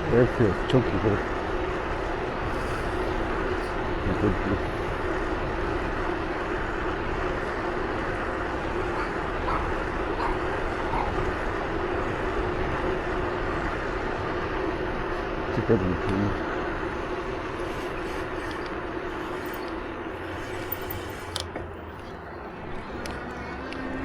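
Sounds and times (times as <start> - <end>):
moving vehicle hum: 0.0 - 24.0.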